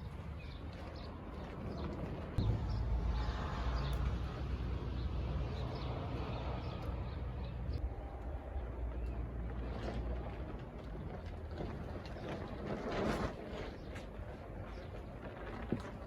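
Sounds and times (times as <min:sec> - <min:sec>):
low steady rumble: 0:02.4 - 0:11.8.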